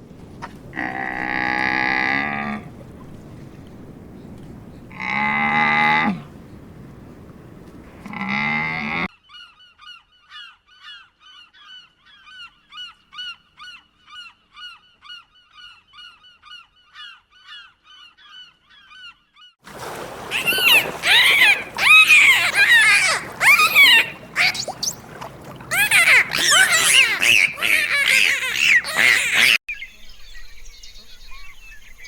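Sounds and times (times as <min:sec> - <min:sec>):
honking bird calls: 0:00.0 - 0:09.1, 0:20.2 - 0:29.6.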